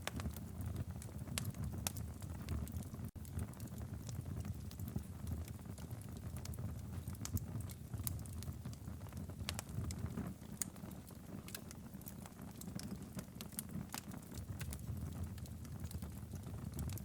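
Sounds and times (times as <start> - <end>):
low rumble of fire: 0.0 - 17.0
wood fire crackling and popping: 0.0 - 17.0.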